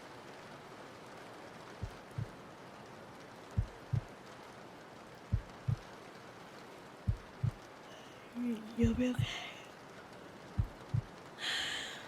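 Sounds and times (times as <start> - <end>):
rain hiss: 0.0 - 12.0
heartbeat thumps: 1.8 - 2.3, 3.6 - 4.1, 5.3 - 5.8, 7.1 - 7.6, 8.8 - 9.4, 10.5 - 11.1.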